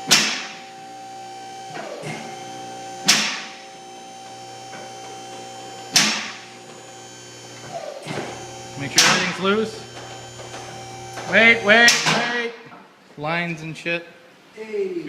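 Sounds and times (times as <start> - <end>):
steady hum: 0.0 - 13.0
hammer striking metal: 0.1 - 0.6, 3.0 - 3.6, 5.9 - 6.4, 8.9 - 9.4, 11.2 - 12.3.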